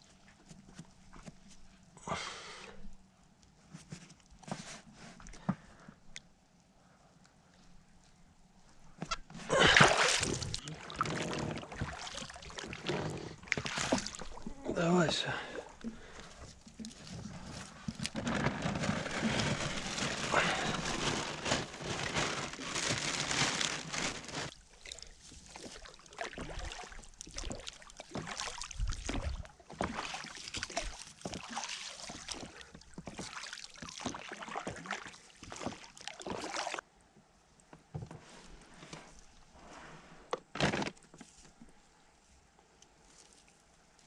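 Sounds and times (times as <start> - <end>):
water splashing: 9.5 - 16.2, 19.0 - 36.8.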